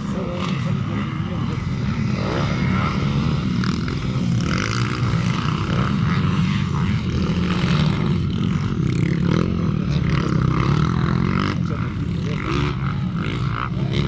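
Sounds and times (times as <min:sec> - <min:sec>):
dirt bike engines droning: 0:00.0 - 0:14.0.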